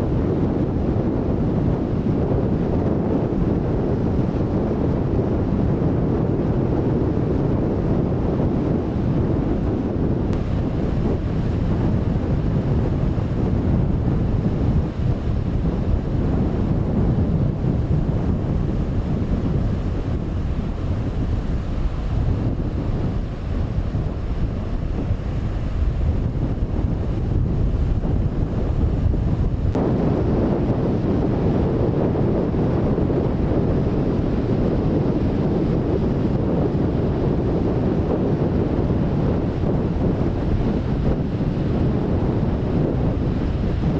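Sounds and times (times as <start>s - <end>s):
rough sea washing: 0.0s - 43.9s
wind buffeting microphone: 0.0s - 43.9s.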